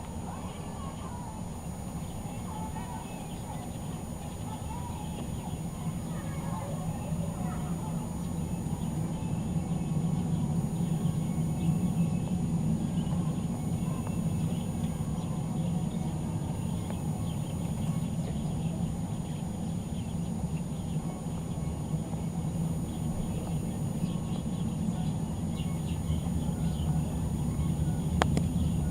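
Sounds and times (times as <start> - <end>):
steady low rumble: 0.0 - 28.9
small birds chirping: 0.1 - 28.9.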